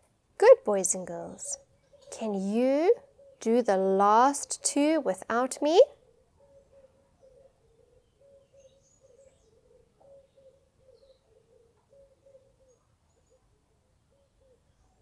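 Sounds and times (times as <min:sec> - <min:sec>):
faint bird calls: 0:01.5 - 0:03.6, 0:05.9 - 0:15.0.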